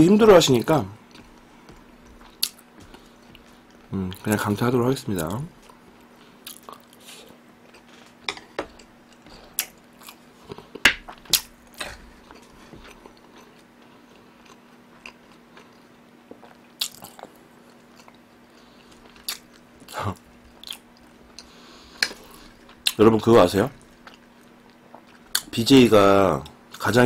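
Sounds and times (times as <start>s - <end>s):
food crunches and clicks: 0.6s - 4.4s, 6.4s - 7.0s, 7.6s - 23.0s.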